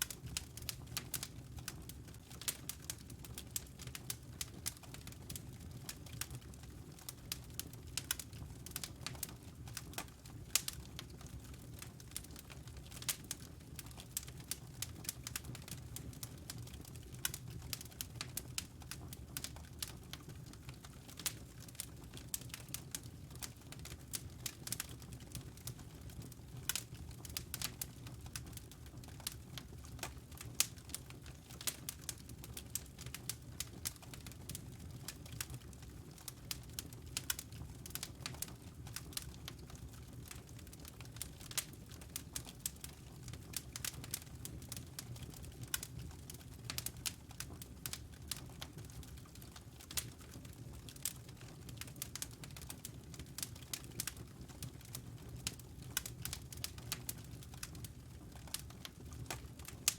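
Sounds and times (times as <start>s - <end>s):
low fire rumble: 0.0s - 59.9s
wood fire crackling: 0.0s - 59.9s.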